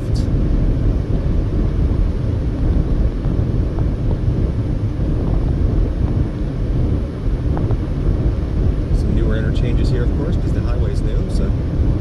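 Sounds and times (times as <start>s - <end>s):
car driving at highway speed: 0.0s - 12.0s.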